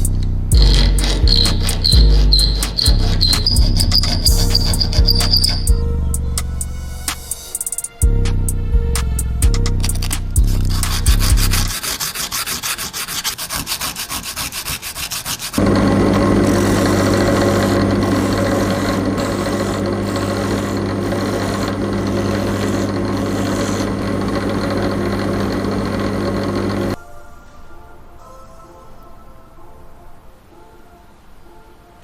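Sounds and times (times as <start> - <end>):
hand sanding strokes: 0.0 - 5.7, 9.9 - 27.0
electric sander running: 15.6 - 27.0.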